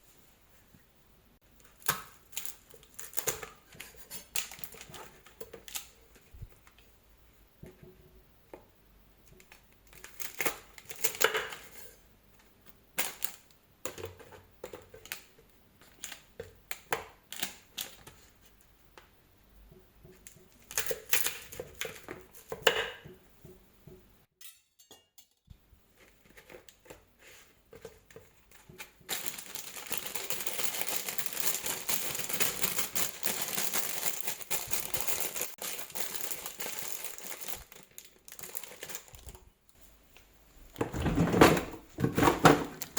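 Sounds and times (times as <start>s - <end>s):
kitchen handling clicks and knocks: 40.8s - 42.9s.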